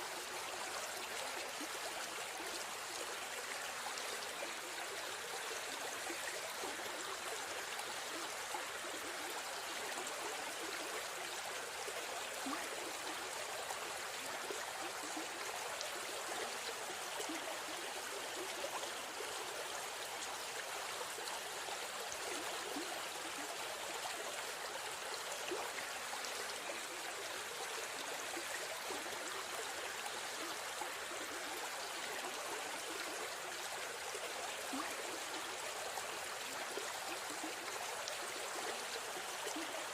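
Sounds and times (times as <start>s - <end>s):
river stream flowing: 0.0s - 39.9s.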